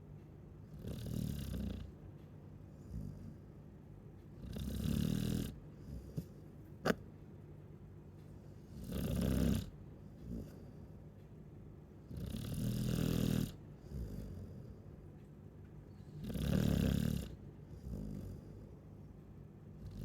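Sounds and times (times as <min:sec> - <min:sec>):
dog snoring: 0:00.6 - 0:02.0, 0:02.7 - 0:03.6, 0:04.4 - 0:07.0, 0:08.5 - 0:11.0, 0:12.0 - 0:14.9, 0:16.0 - 0:18.8, 0:19.8 - 0:20.0.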